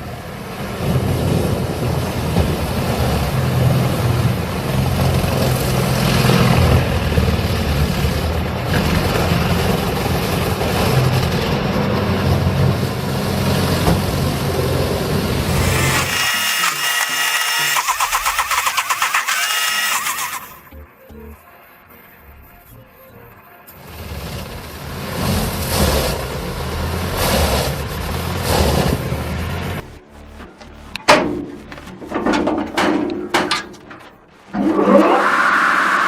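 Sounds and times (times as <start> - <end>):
engine hum: 0.0 - 21.0, 23.7 - 36.0
wood being cut: 15.0 - 20.7
rhythmic machine sound: 15.4 - 21.4, 27.8 - 34.6.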